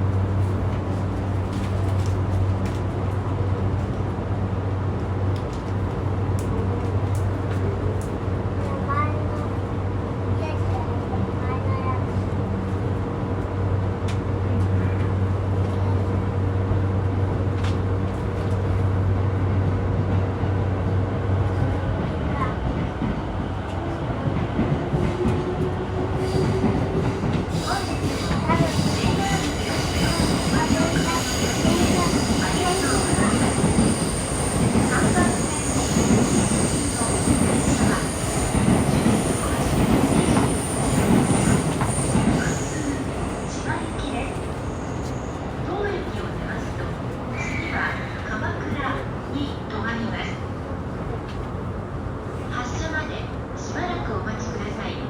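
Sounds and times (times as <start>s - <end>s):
train wheels rumbling on rail: 0.0s - 55.0s
high wheel squeals: 27.5s - 45.4s.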